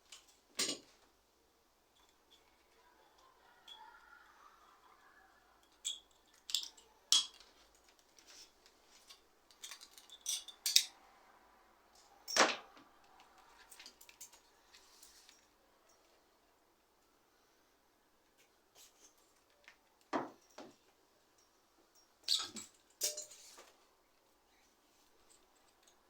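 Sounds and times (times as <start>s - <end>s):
metal tools clinking: 5.7s - 8.0s, 9.0s - 11.0s, 21.4s - 23.6s.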